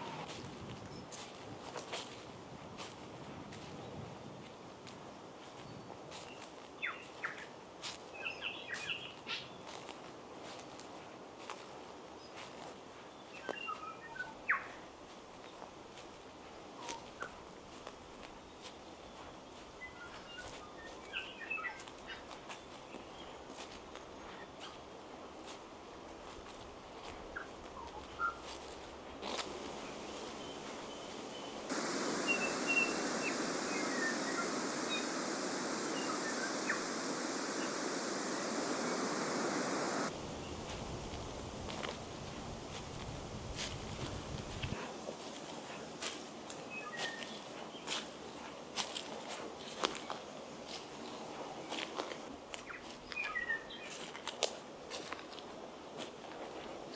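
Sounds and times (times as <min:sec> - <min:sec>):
bush ambience: 0:29.4 - 0:40.1
birds calling: 0:29.9 - 0:40.1
steady rushing noise: 0:31.7 - 0:40.1.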